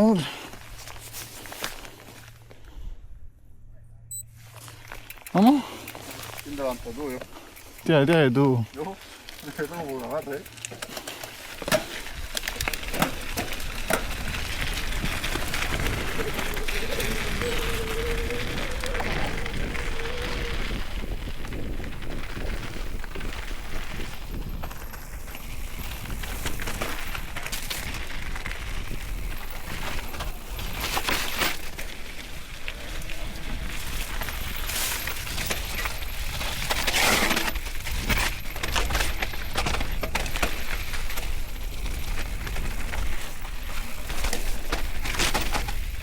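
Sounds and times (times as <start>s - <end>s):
bike rattling and knocking: 9.4s - 46.0s
wind rumbling on microphone: 12.0s - 46.0s.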